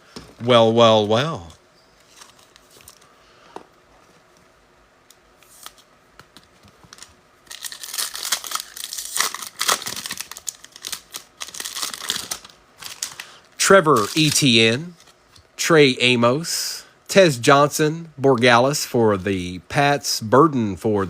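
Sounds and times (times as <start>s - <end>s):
foil wrapper tearing and crinkling: 6.9s - 13.3s.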